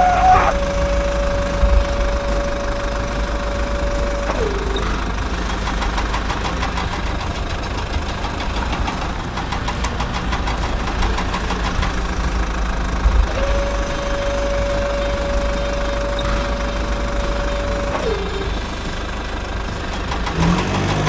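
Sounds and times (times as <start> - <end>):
toy motor whining: 0.0 - 5.5, 13.2 - 19.1
rapid mechanical clicks: 0.0 - 21.0.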